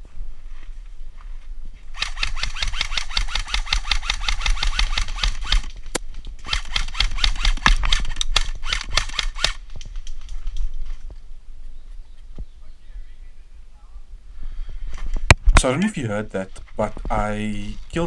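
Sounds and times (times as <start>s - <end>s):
airsoft rifle full-auto bursts: 1.9s - 5.7s, 6.4s - 9.6s.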